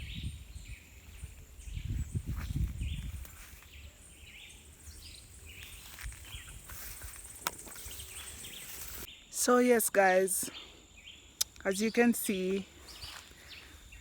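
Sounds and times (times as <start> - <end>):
low rumble on microphone: 0.0 - 3.4
birds chirping and calling: 0.0 - 14.0
outdoor background noise: 0.0 - 14.0.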